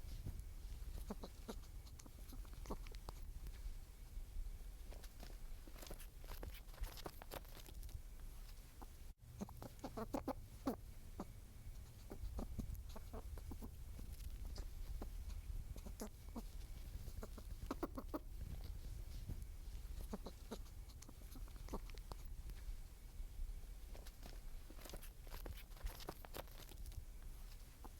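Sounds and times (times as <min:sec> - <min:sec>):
small animals clucking: 0:00.0 - 0:04.1, 0:04.8 - 0:27.9
low steady rumble: 0:00.0 - 0:27.9.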